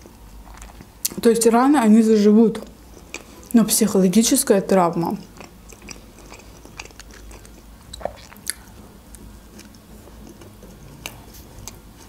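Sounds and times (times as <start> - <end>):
woman chewing bread: 0.0 - 1.2, 2.6 - 3.6, 5.2 - 12.0.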